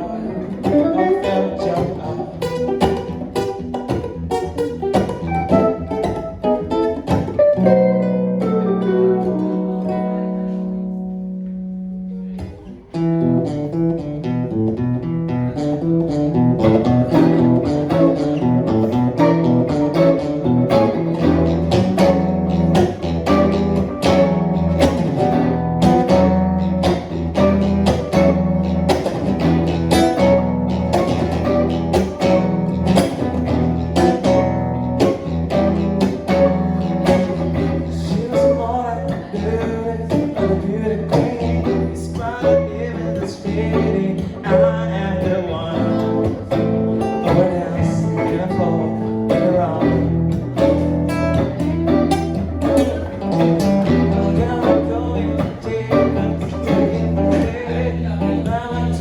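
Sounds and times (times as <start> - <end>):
guitars playing: 0.0 - 59.0
low bass line: 0.0 - 59.0.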